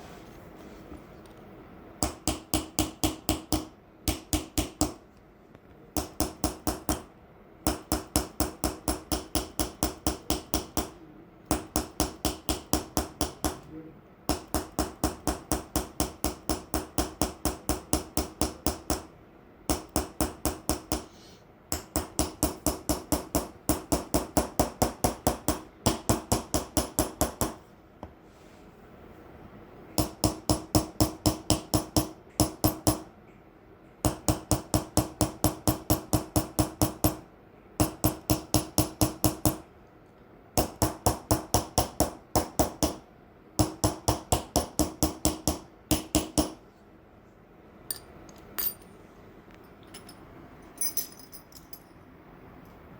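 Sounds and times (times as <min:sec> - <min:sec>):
hammer tapping chisel on metal: 0:02.0 - 0:05.0, 0:06.0 - 0:07.1, 0:07.7 - 0:13.7, 0:14.3 - 0:19.1, 0:30.0 - 0:33.1, 0:47.9 - 0:48.9.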